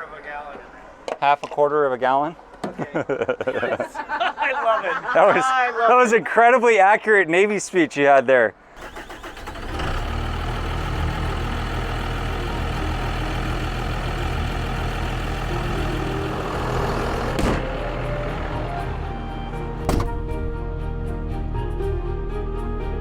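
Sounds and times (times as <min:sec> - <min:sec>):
diesel engine running: 0:08.8 - 0:20.3.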